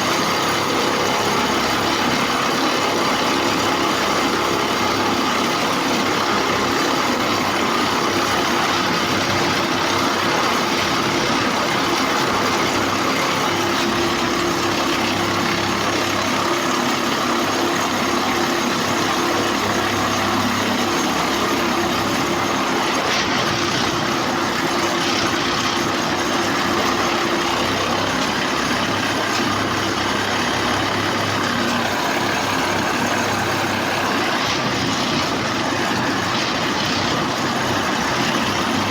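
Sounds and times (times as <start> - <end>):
diesel engine drone: 0.0 - 38.9.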